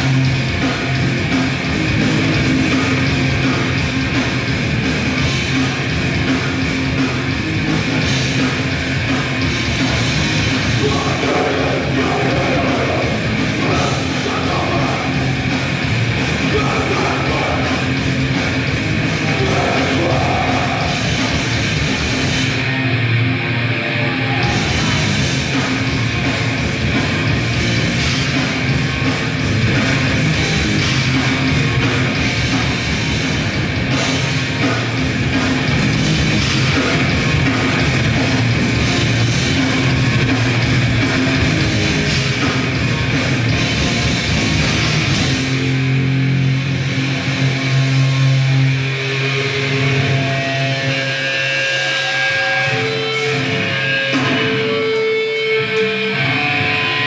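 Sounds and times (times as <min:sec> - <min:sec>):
fast dense drumming: 0:00.0 - 0:22.7, 0:24.4 - 0:48.0
distorted electric guitars and bass: 0:00.0 - 0:57.0.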